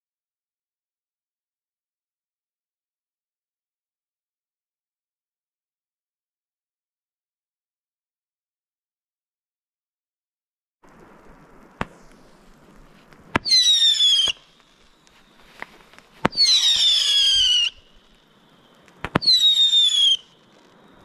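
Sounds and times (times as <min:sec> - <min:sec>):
firework cracks: 0:10.8 - 0:21.0
firework pops: 0:10.8 - 0:21.0
shrill firework whistle: 0:13.4 - 0:15.6, 0:16.2 - 0:21.0.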